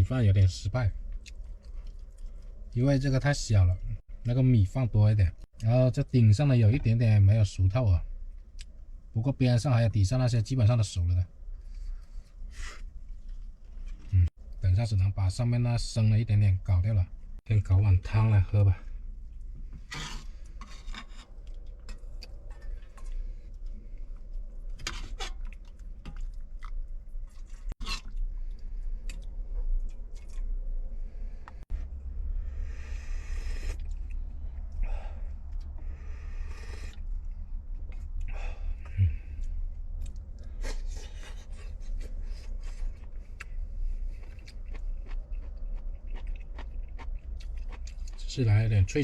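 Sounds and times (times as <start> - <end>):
steady low rumble: 21.3 - 49.0
eating sounds: 21.4 - 30.6, 37.8 - 48.3
low rumble: 28.2 - 40.6.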